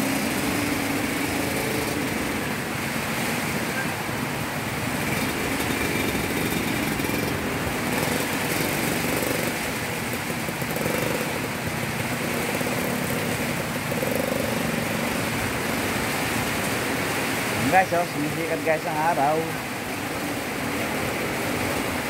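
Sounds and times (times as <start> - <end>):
small motorcycle engine running: 0.0 - 17.4
heavy rain on a wet road: 0.0 - 22.0.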